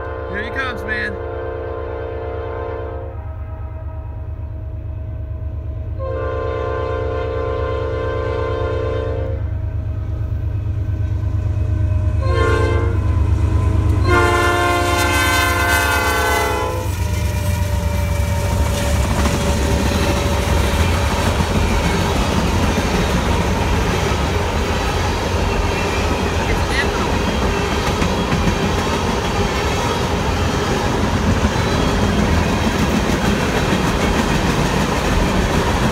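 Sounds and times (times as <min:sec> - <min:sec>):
train air horn blasts: 0:00.0 - 0:04.6, 0:06.0 - 0:09.6, 0:12.2 - 0:20.5
diesel locomotive rumble: 0:00.0 - 0:35.9.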